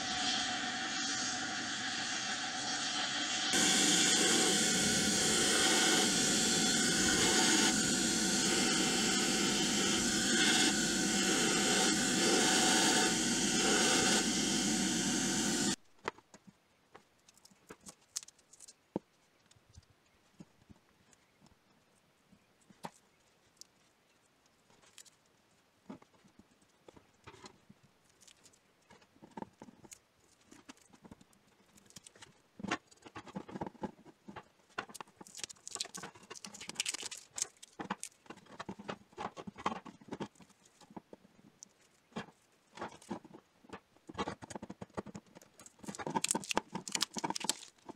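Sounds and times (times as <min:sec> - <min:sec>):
sandblaster hissing: 0:00.0 - 0:15.8.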